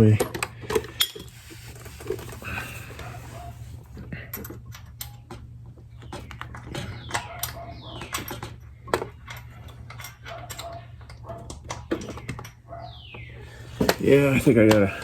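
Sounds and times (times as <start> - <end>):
metal tools clicking and scraping: 0.0 - 5.4, 6.1 - 12.6.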